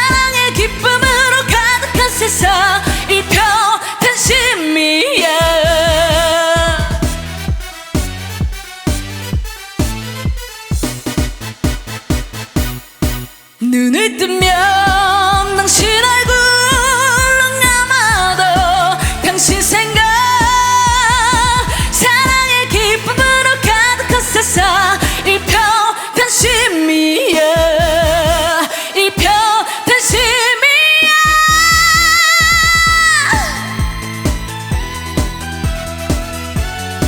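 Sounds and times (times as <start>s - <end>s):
woman singing with vibrato: 0.0s - 7.3s, 13.6s - 35.7s
band accompaniment: 5.3s - 13.6s, 14.4s - 25.7s, 31.1s - 37.0s.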